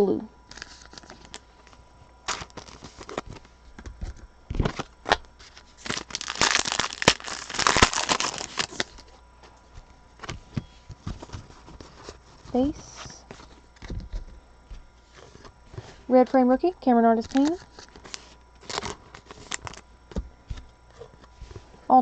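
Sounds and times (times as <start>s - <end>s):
foil wrapper tearing and crinkling: 0.5s - 1.4s, 2.2s - 3.5s, 4.1s - 9.0s, 17.2s - 19.8s.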